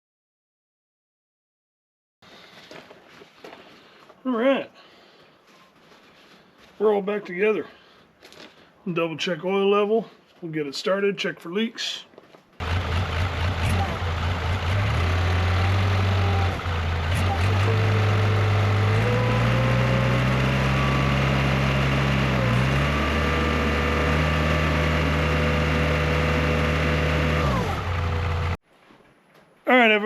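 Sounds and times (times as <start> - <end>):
diesel engine revving: 12.6 - 28.6.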